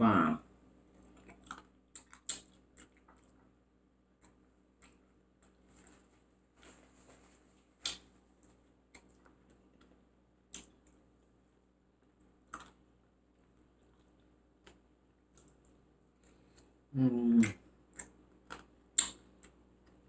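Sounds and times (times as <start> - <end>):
mouth clicks and smacks chewing: 1.0 - 3.5, 4.2 - 5.6, 8.9 - 11.0, 12.4 - 12.8, 13.8 - 16.7, 17.4 - 20.0.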